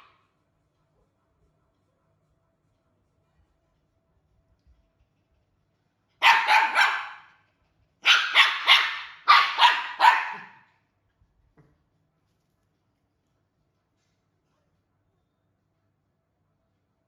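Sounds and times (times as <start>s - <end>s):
dog barking: 6.2s - 7.4s, 8.0s - 10.8s.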